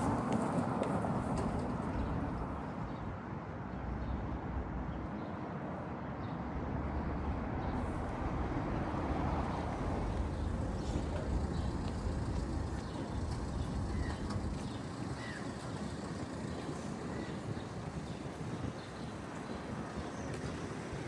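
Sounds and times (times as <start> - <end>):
passing motor vehicles rumble: 6.4 - 21.0.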